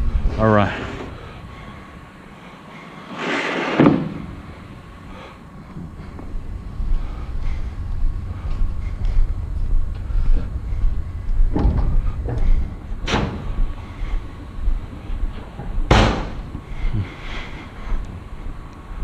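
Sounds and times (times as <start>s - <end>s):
low steady rumble: 0.0s - 2.8s, 4.1s - 19.0s
vehicle door slamming: 15.9s - 16.4s.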